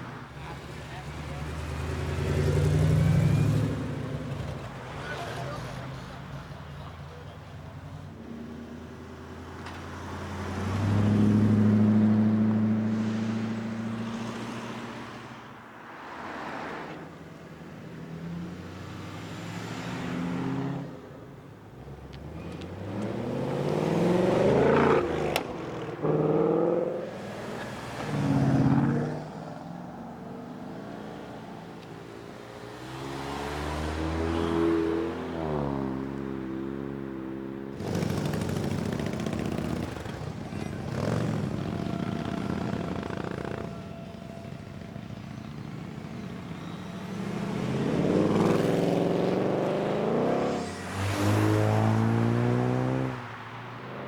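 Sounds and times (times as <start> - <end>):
car engine revving: 22.2 - 27.2, 46.0 - 53.4
engine blips: 37.8 - 49.4.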